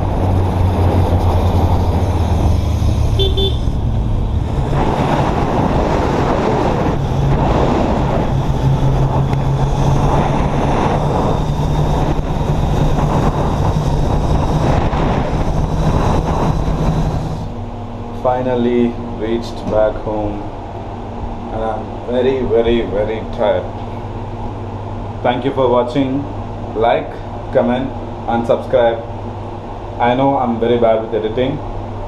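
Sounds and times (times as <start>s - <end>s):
motorcycle engine running: 0.0s - 18.3s
wind and road rush: 0.0s - 32.0s
short horn beep: 3.2s - 3.8s.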